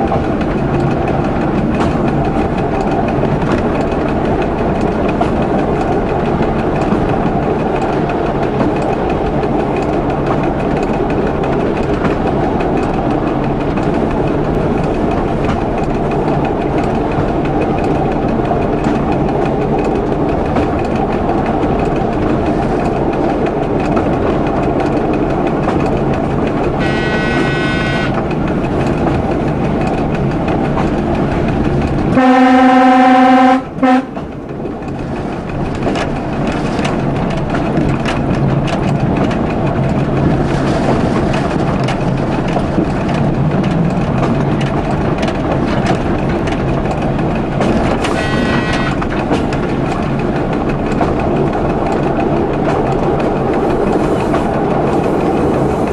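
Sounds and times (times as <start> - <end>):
train running on rails: 0.0 - 55.9
train horn blast: 26.8 - 28.2, 32.2 - 34.2, 48.0 - 49.0.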